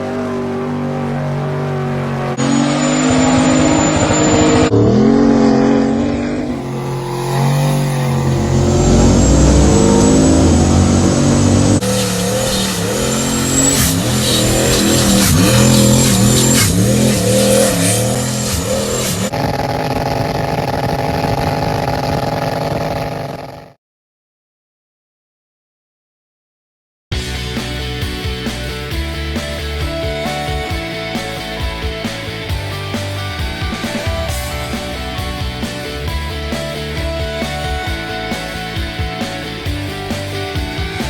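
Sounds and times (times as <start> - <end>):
truck engine revving: 0.0 - 23.7, 27.2 - 41.0
thin high squeal: 2.7 - 4.7, 11.8 - 19.3.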